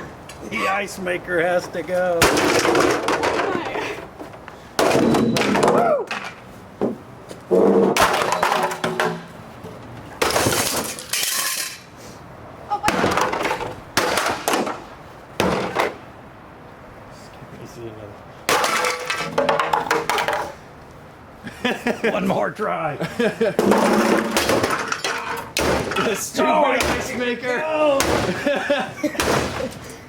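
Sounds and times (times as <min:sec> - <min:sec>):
heavy blows smashing ice maker: 0:23.6 - 0:27.3, 0:28.0 - 0:29.8.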